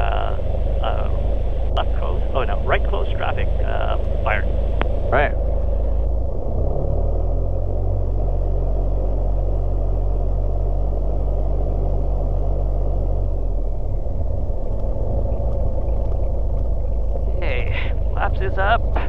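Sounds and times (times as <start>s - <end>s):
aircraft engine drone: 0.0s - 19.0s
propeller hum: 0.0s - 19.0s.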